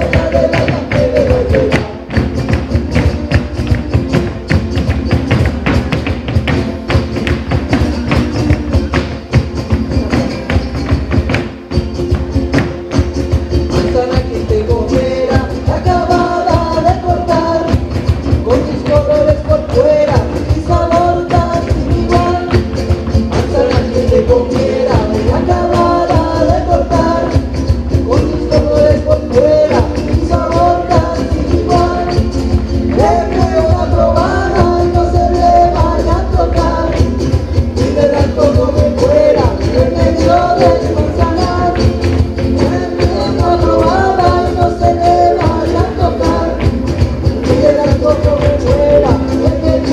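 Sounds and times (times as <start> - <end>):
person singing: 0.0 - 3.6, 13.4 - 49.9
dense percussion beat: 0.0 - 49.9
live latin band playing: 0.0 - 49.9.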